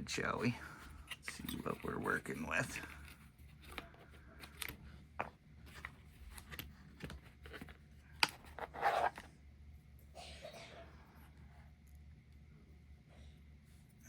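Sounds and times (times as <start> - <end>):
rustling scrape: 5.6 - 9.3.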